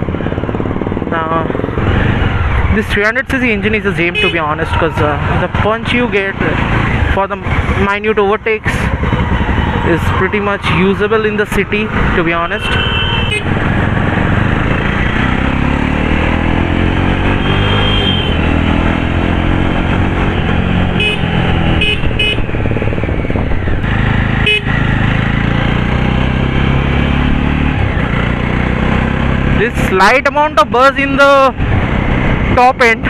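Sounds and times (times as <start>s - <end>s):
motorcycle engine accelerating: 0.0s - 33.0s
vehicle horns honking: 4.0s - 4.8s, 12.5s - 13.6s, 17.3s - 18.6s, 20.9s - 22.5s, 24.4s - 24.8s.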